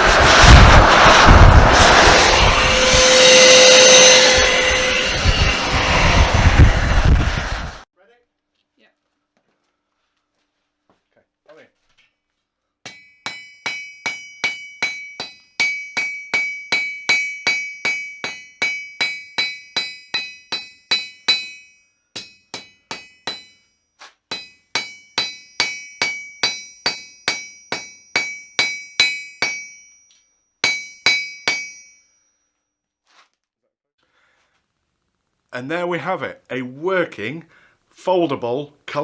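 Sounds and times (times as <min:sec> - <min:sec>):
hammer ringing on steel anvil: 0:12.9 - 0:32.3.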